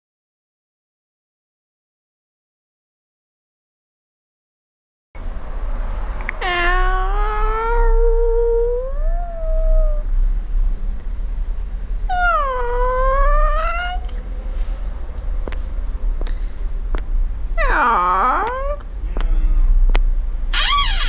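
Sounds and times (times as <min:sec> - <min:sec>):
low rumble: 0:05.2 - 0:20.6
cat yowling: 0:06.3 - 0:10.1, 0:12.1 - 0:14.1, 0:17.6 - 0:18.8.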